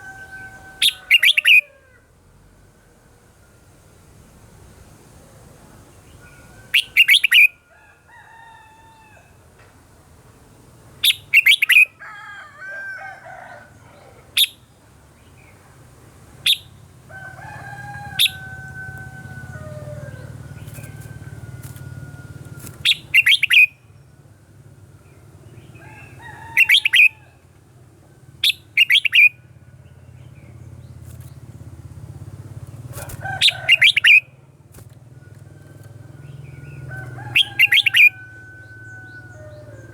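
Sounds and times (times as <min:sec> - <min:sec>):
harsh bird call bursts: 0:00.0 - 0:01.7, 0:22.8 - 0:23.8, 0:32.9 - 0:34.4
bird singing whistled phrases: 0:22.8 - 0:23.7.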